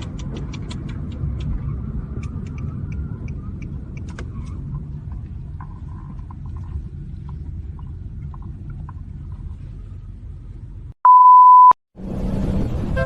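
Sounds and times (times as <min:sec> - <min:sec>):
car engine and road noise: 0:00.0 - 0:13.0
high electronic beep: 0:11.0 - 0:11.8.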